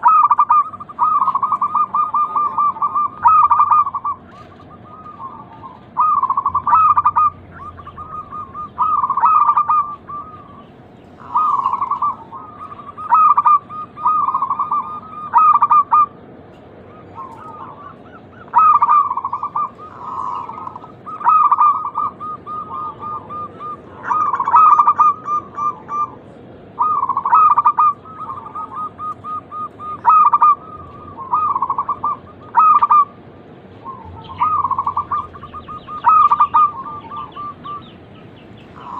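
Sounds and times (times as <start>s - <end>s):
doves cooing: 0.0s - 38.9s.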